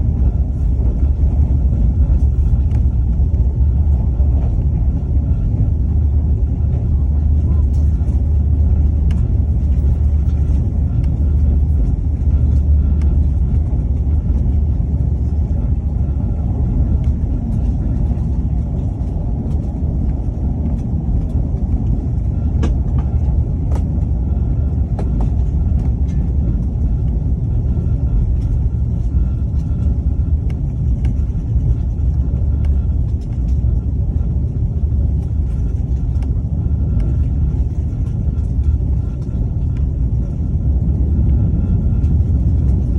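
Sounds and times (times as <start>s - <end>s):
train rumbling: 0.0s - 42.9s.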